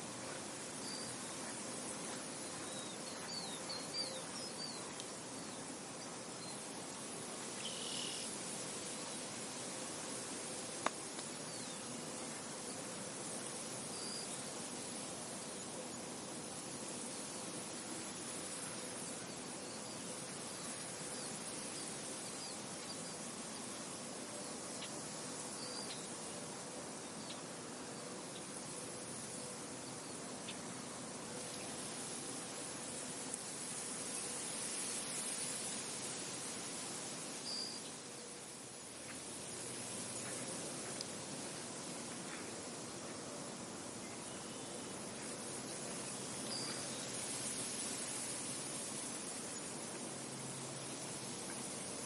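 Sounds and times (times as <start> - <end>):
wind hiss: 0.0 - 52.0
faint bird chirps: 0.8 - 6.7, 7.5 - 8.3, 37.4 - 38.0, 45.7 - 47.1.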